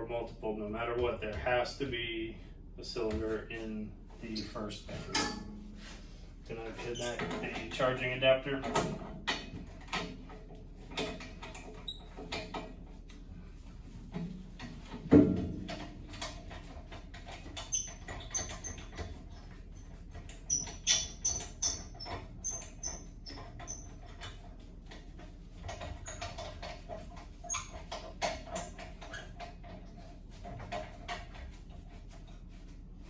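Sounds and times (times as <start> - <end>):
high squeaky clicks: 20.2 - 24.4.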